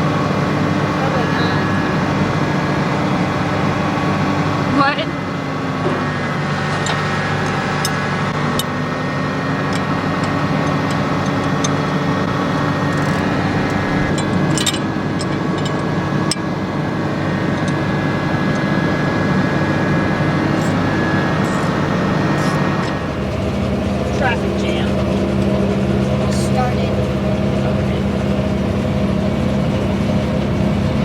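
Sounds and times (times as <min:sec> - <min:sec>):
tractor engine running: 0:00.0 - 0:31.0
sharp clicks and rattles: 0:05.7 - 0:27.9.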